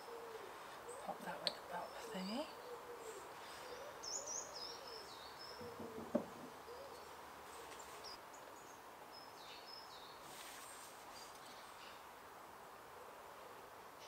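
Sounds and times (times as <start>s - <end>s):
birds chirping and calling: 0.0s - 8.8s.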